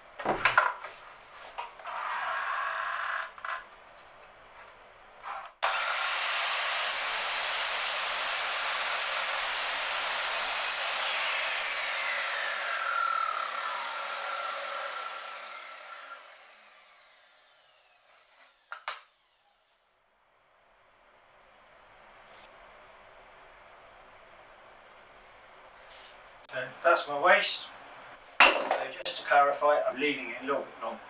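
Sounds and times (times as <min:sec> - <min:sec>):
miter saw cutting wood: 0:05.6 - 0:19.8
saw blade winding down: 0:05.6 - 0:19.8.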